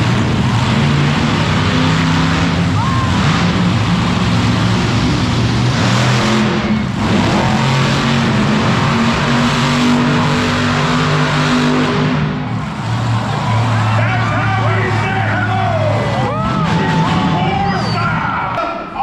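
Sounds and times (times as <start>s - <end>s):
monster truck engine revving: 0.0s - 18.6s.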